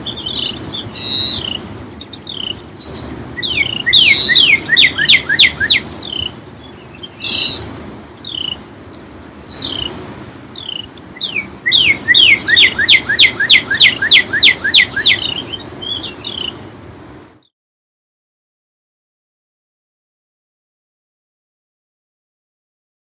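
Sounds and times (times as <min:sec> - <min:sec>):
lake waves lapping on shore: 0:00.0 - 0:17.2
songbird whistling falling notes: 0:02.3 - 0:06.3, 0:09.5 - 0:09.9, 0:10.6 - 0:16.5.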